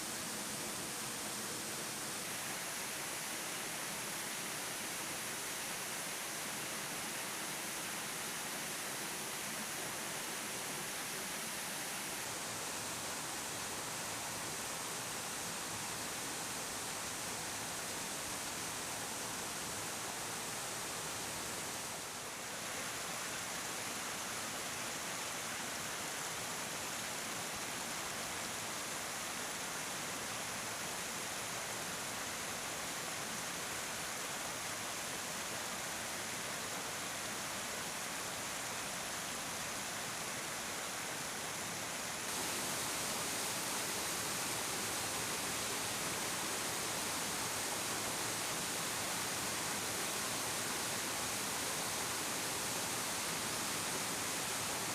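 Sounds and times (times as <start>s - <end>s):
waterfall roaring: 22.8s - 54.9s.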